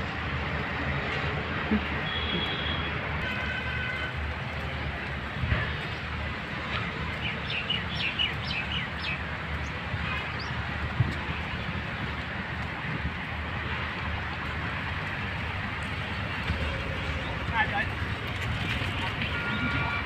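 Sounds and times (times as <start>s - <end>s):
birds chirping: 7.0s - 10.7s.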